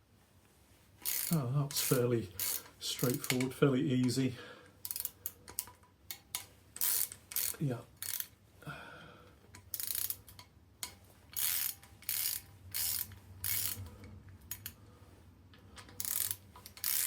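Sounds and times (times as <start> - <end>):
socket ratchet clicking: 1.0 - 4.2, 4.8 - 8.4, 9.6 - 14.8, 15.8 - 17.0.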